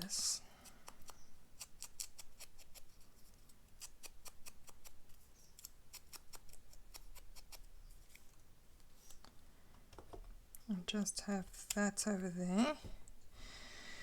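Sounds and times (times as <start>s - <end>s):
clicks and snips on paper: 0.6s - 8.3s.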